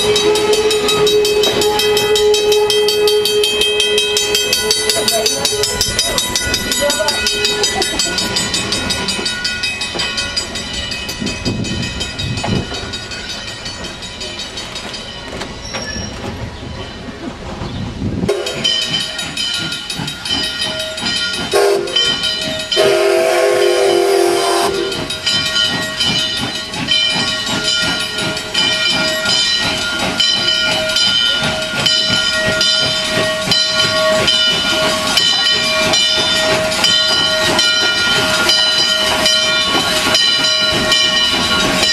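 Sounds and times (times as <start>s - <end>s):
steam whistle blast: 0.0s - 4.4s, 18.3s - 18.7s, 21.6s - 22.1s, 22.8s - 25.0s
steady ringing tones: 0.0s - 16.1s, 24.9s - 41.9s
steam hissing: 18.2s - 41.9s.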